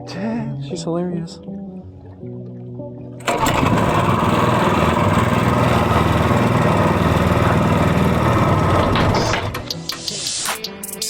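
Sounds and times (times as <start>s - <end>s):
small engine running at high throttle: 3.2s - 9.7s.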